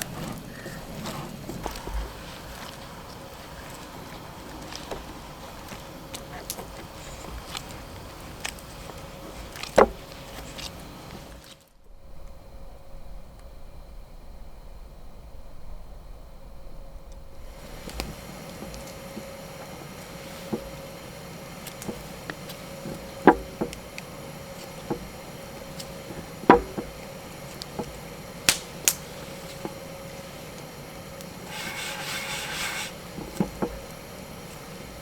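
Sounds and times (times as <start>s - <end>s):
rustling: 0.0s - 11.7s, 31.4s - 33.8s.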